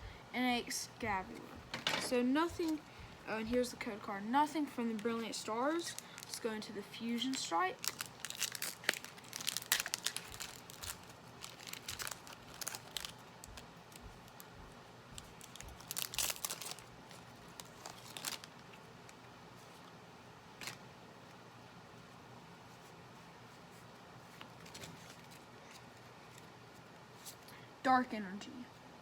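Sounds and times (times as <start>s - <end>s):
foil wrapper tearing and crinkling: 7.1s - 13.6s, 15.2s - 18.7s.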